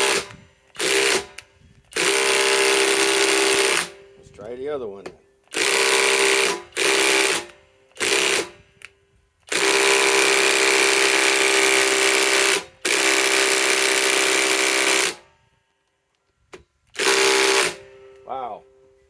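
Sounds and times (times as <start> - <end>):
impact driver hammering: 0.0 - 4.1, 5.0 - 8.9, 9.5 - 15.3, 17.0 - 18.2.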